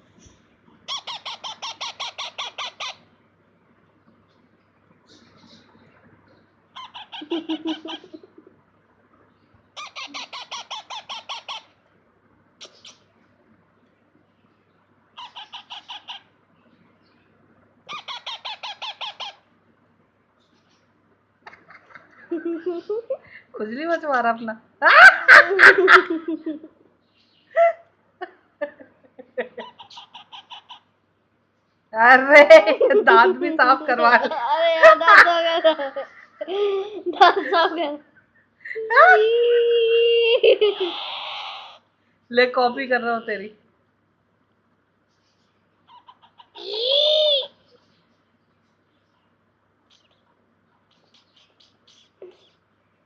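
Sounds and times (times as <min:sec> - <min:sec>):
parrots calling rapidly: 0:00.9 - 0:03.1, 0:06.7 - 0:08.2, 0:09.8 - 0:11.8, 0:15.2 - 0:16.4, 0:17.9 - 0:19.5, 0:29.6 - 0:31.0, 0:40.6 - 0:41.9, 0:45.8 - 0:47.7
parrots clicking and chirping: 0:49.8 - 0:52.5.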